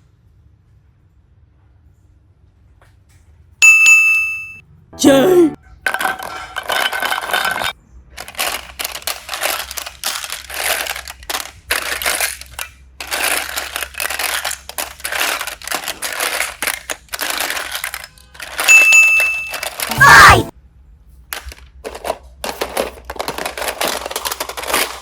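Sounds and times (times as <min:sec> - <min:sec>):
bright ding: 0:03.6 - 0:05.3, 0:18.7 - 0:19.6.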